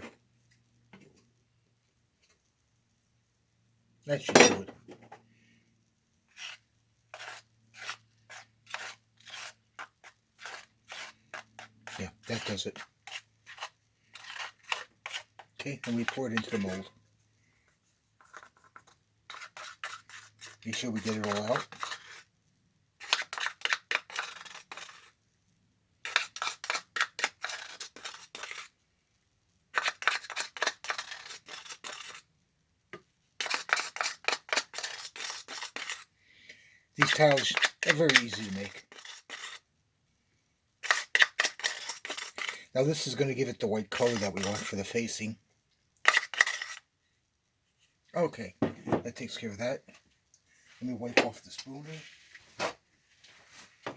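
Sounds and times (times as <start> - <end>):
spoon scraping wet cement: 6.3 - 17.0, 17.6 - 22.3, 23.0 - 25.2, 26.0 - 28.8, 29.7 - 32.3, 33.4 - 36.1, 37.0 - 39.7, 40.8 - 45.4, 46.0 - 46.9.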